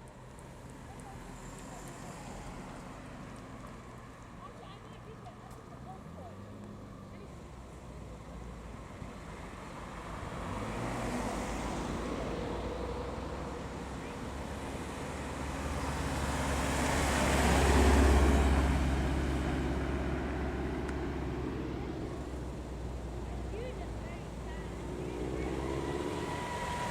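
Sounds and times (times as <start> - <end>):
quieter vehicle passing: 9.4 - 26.9
car driving past: 10.1 - 23.6, 24.4 - 26.9.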